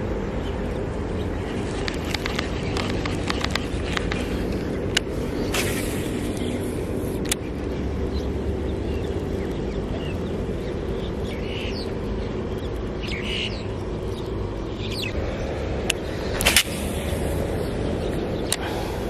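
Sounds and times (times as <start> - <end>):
birds chirping: 0.0 - 19.0
distant traffic: 0.0 - 19.0
wind: 0.0 - 19.0
sharp click: 15.8 - 16.9.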